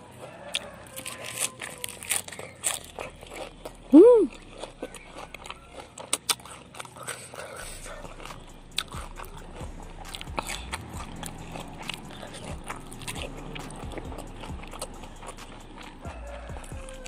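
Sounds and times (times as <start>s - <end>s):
biting and chewing food: 0.0s - 17.0s
wet mouth clicks and smacks: 7.1s - 16.0s.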